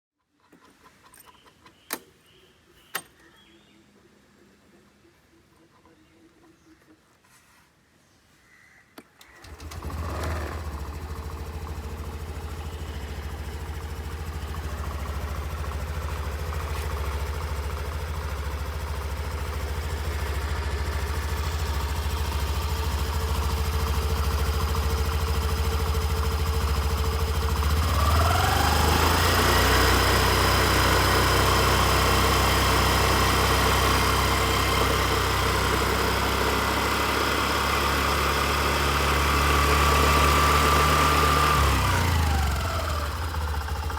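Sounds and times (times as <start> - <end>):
scooter engine idling: 9.4 - 43.9.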